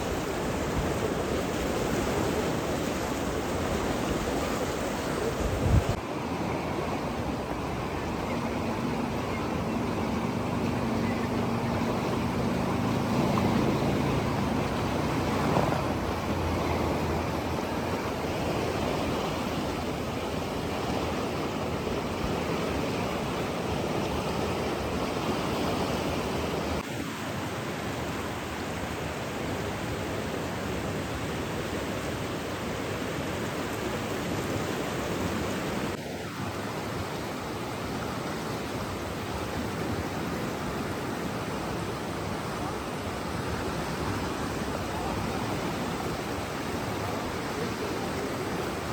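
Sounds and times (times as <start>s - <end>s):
rushing water: 0.0s - 48.9s.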